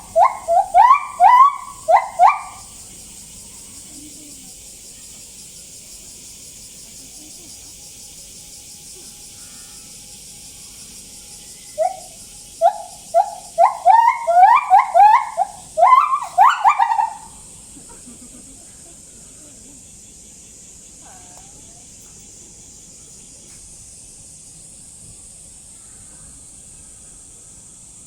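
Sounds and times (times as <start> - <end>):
gibbon whooping: 0.0 - 2.7, 11.8 - 17.4
steady high hiss: 0.0 - 28.0.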